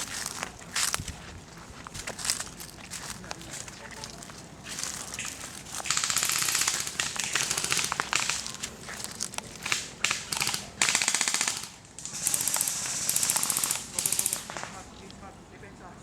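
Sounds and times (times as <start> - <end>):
airsoft guns firing bursts: 5.2 - 15.0.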